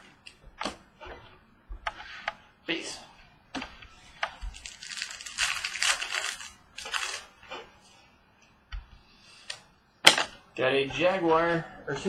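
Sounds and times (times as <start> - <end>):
wrapper crinkling and rustling: 4.5 - 7.3.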